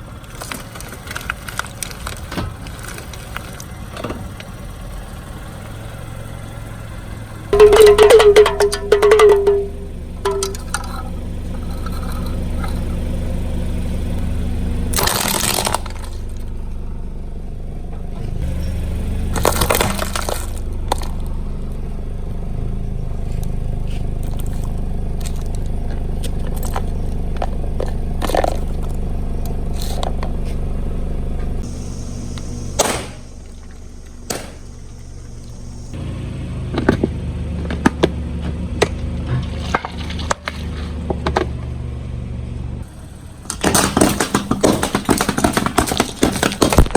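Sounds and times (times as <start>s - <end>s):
car engine idling: 0.0s - 46.9s
tyre crushing objects: 7.6s - 12.8s, 14.9s - 16.6s, 18.4s - 21.4s, 23.2s - 30.7s, 43.4s - 46.9s
sharp snaps and cracks: 14.9s - 16.5s.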